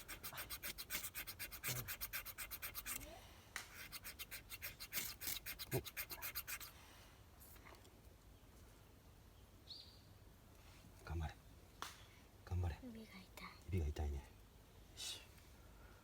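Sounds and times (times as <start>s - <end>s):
striker scraping ferro rod: 0.0s - 3.1s, 3.7s - 6.7s.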